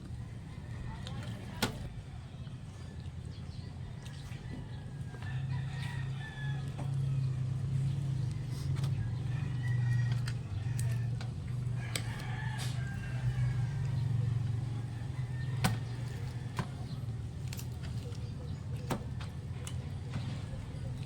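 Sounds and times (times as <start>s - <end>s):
rooster crowing: 4.0s - 7.8s, 8.9s - 17.1s.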